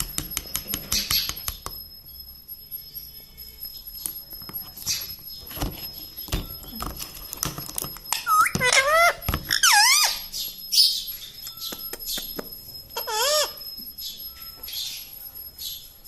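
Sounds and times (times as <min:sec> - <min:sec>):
sharp clicks and knocks: 0:00.0 - 0:01.8
parrot squeaky calls: 0:08.1 - 0:15.8.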